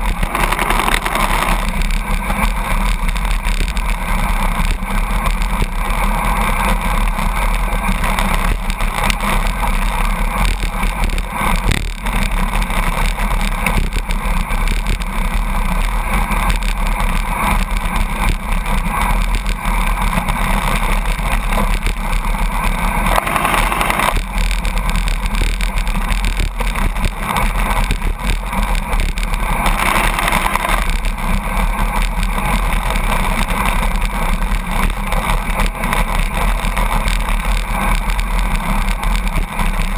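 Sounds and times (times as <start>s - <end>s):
truck droning: 0.0s - 13.3s
wind and road noise: 0.0s - 39.9s.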